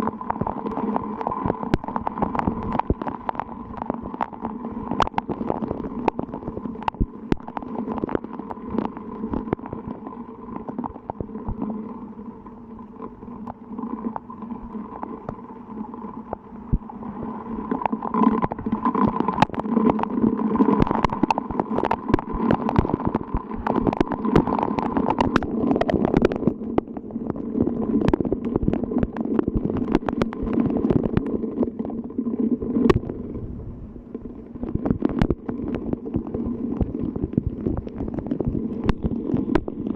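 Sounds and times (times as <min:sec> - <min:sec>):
raindrops tapping a surface: 0:00.0 - 0:11.7, 0:17.6 - 0:32.0, 0:34.6 - 0:39.9.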